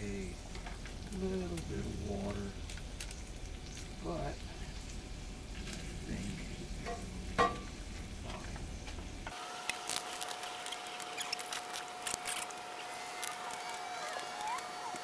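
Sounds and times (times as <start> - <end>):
low hum: 0.0 - 9.3
faint steady whine: 0.0 - 15.0.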